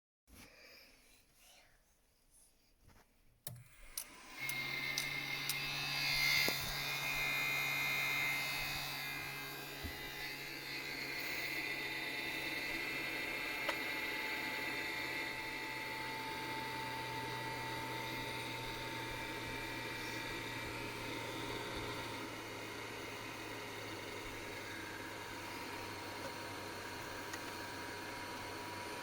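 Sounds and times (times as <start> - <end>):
cooling fan whining and humming: 3.5 - 29.0.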